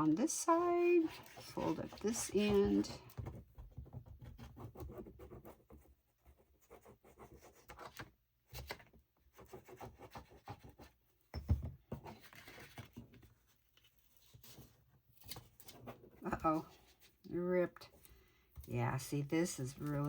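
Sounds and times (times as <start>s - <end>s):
paper rustling and crackling: 12.0s - 17.2s, 19.6s - 20.0s.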